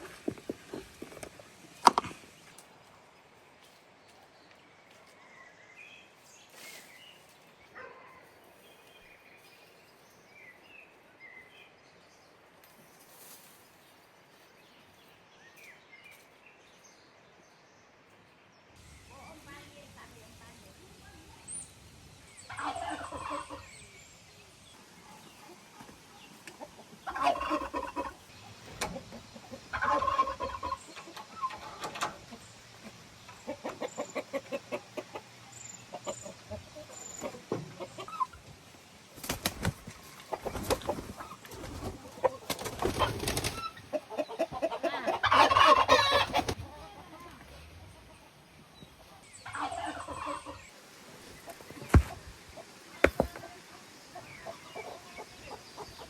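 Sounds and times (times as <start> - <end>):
chickens clucking: 0.0 - 2.6, 19.1 - 56.0.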